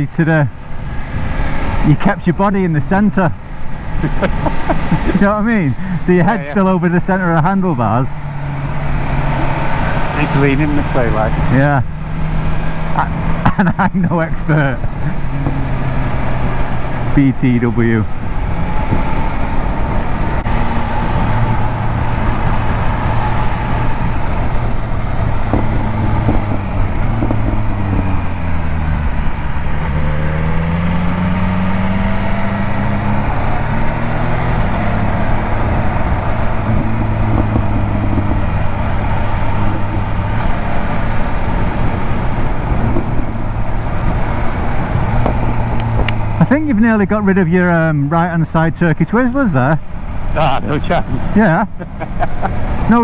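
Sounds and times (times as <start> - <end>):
wind rushing past microphone: 18.0 - 46.4
motorcycle engine running: 19.6 - 47.1.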